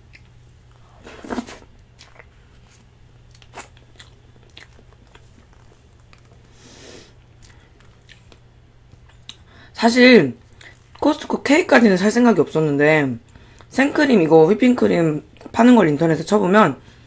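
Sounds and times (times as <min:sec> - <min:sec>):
person chewing with wet clicks: 0:00.0 - 0:00.4, 0:01.9 - 0:06.5, 0:07.2 - 0:09.5, 0:10.4 - 0:11.1.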